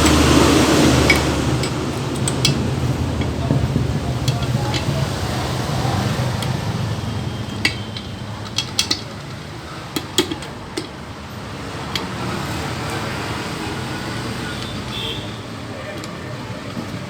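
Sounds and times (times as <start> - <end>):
metal clinking and tapping: 0.0 - 13.4.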